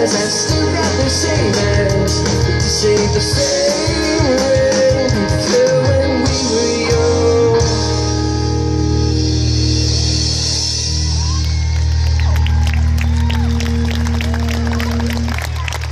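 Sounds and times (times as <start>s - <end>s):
lead guitar bending notes: 0.0s - 11.2s
drums and cymbals: 0.0s - 11.6s
bass guitar: 0.0s - 15.9s.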